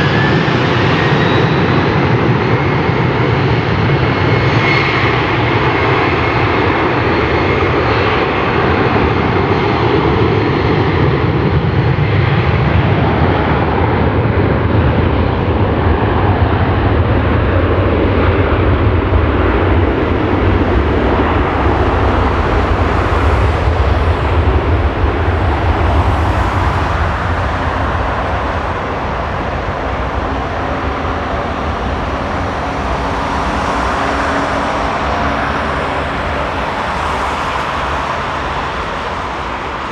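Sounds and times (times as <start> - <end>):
jet engines roaring: 13.6 - 39.9.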